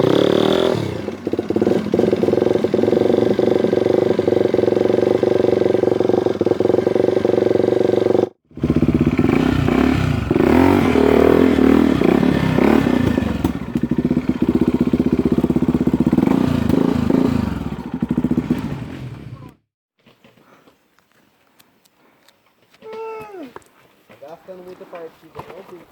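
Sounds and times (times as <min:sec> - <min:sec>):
dirt bike engine revving: 0:00.0 - 0:19.6.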